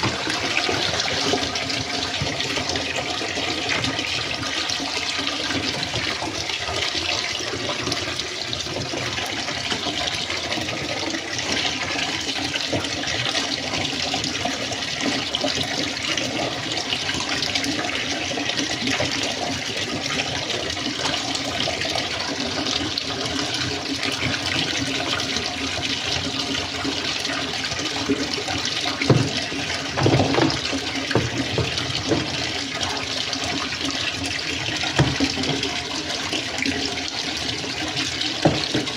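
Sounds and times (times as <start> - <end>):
water churning in washing machine: 0.0 - 38.9
knocks: 29.1 - 32.5, 35.0 - 35.6, 38.4 - 38.9.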